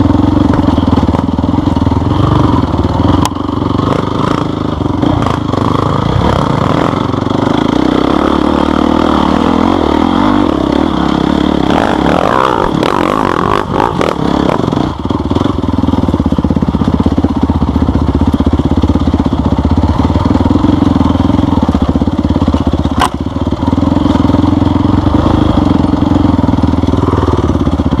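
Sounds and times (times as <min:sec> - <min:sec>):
off-road motorcycle engine: 0:00.0 - 0:28.0.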